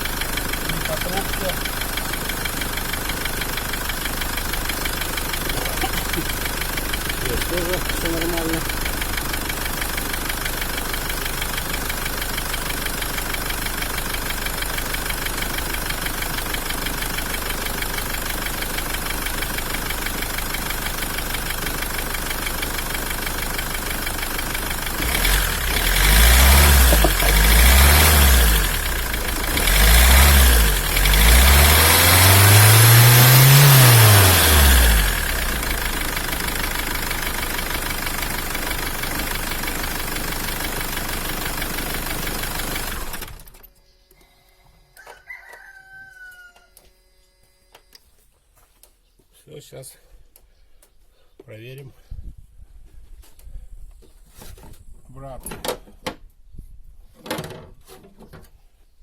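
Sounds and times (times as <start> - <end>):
diesel engine idling and revving: 0.0 - 43.7.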